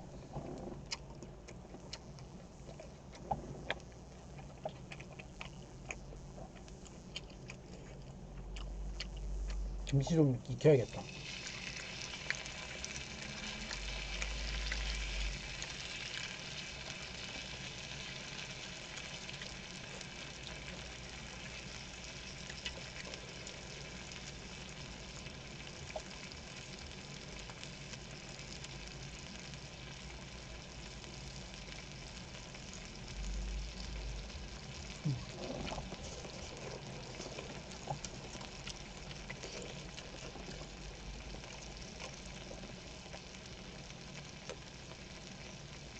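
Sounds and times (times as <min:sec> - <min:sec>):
food sizzling in a pan: 0:10.8 - 0:45.9.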